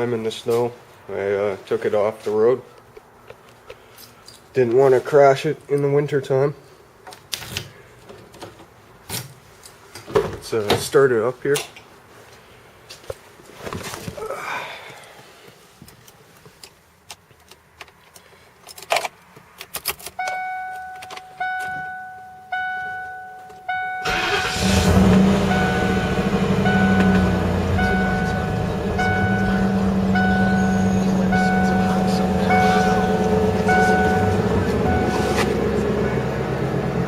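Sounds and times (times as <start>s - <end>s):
car warning chime: 20.2s - 37.0s
car engine idling: 20.8s - 37.0s
car engine starting: 23.7s - 37.0s.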